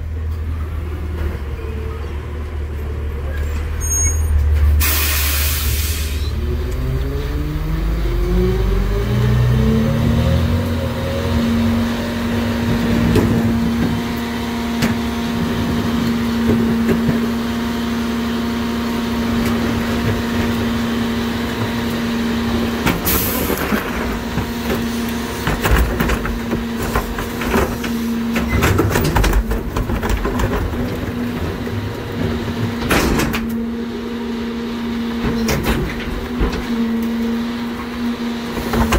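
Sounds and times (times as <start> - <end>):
garbage truck engine revving: 4.6 - 38.9
trash being compacted: 9.8 - 38.9.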